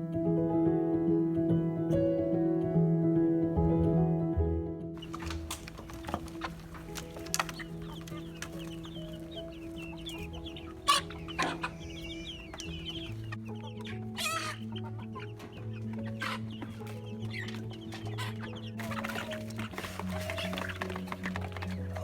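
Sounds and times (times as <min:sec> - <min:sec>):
background music with low notes: 0:00.0 - 0:22.0
chickens clucking: 0:05.0 - 0:22.0.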